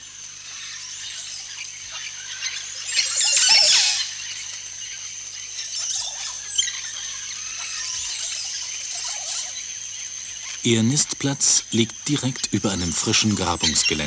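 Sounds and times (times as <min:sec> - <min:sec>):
birds squealing calls: 0:00.4 - 0:14.0
bird chirps: 0:10.6 - 0:14.0.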